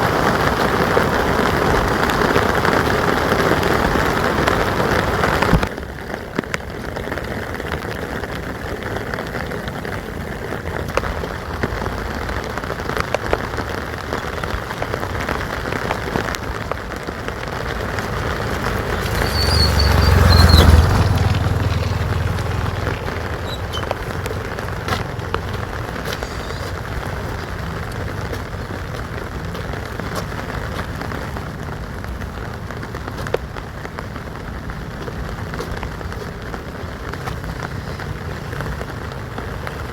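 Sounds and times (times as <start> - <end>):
steady rain falling: 0.0 - 39.9
sharp drips: 17.7 - 30.4.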